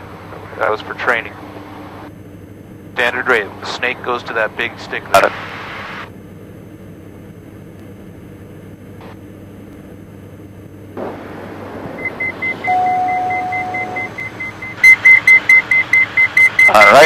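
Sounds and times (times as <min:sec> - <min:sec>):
cockpit engine drone: 0:00.0 - 0:17.0
steady low warning tone: 0:00.0 - 0:17.0
rapid high-pitched warning beep: 0:12.0 - 0:17.0.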